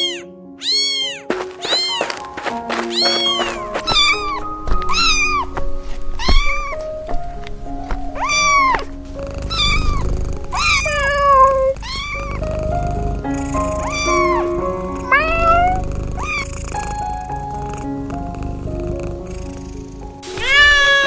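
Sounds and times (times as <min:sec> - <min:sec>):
background music with held notes: 0:00.0 - 0:21.0
cat meowing: 0:20.2 - 0:21.0.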